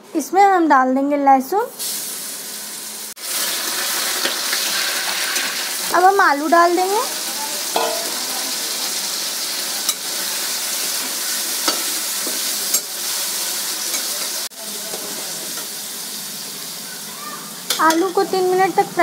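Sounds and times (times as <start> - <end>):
potatoes sizzling in oil: 1.4 - 19.0
steel spoon clinking on pan: 7.7 - 8.3, 9.9 - 10.1, 11.6 - 13.0.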